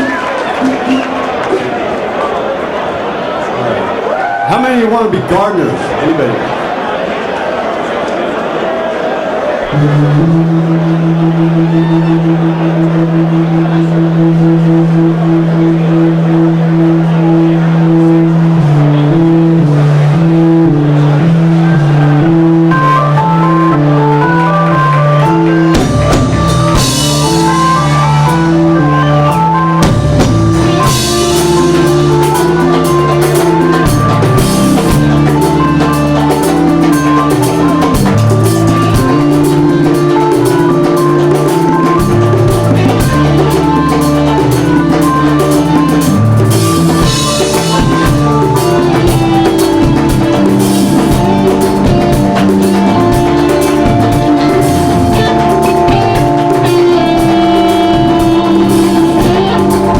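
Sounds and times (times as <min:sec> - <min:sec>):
organ chords: 0:00.0 - 0:07.8, 0:08.4 - 0:59.9
bass and guitar: 0:09.7 - 0:59.9
drum kit steady beat: 0:22.3 - 0:59.9.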